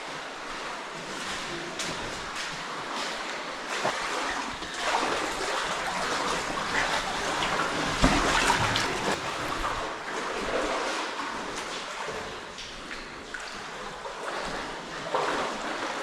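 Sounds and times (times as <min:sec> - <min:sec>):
stream water splashing: 0:00.0 - 0:16.0.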